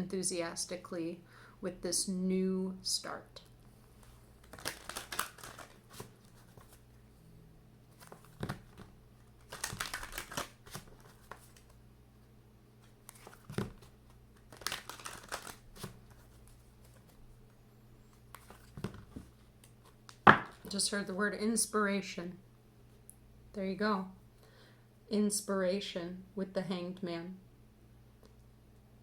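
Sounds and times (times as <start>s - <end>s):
cards being shuffled: 4.0s - 6.8s, 7.9s - 11.8s, 12.8s - 17.2s, 18.1s - 20.7s.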